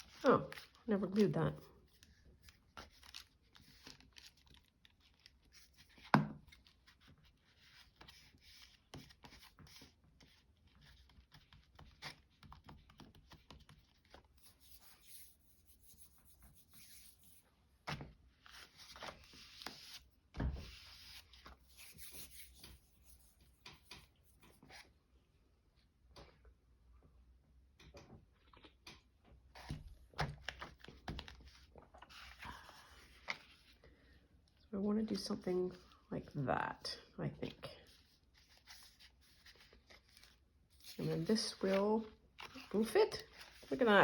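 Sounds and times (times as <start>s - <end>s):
paper rustling: 0.0s - 24.8s, 37.9s - 44.0s.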